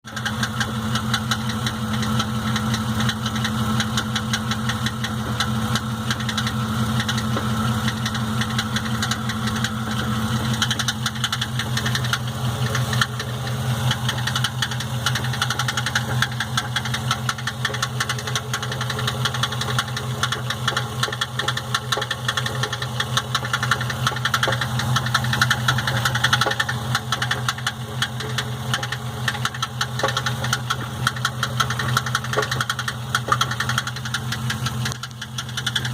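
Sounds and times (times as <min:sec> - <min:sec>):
rapid continuous rattle: 0:00.0 - 0:35.9
van engine running: 0:00.0 - 0:35.9.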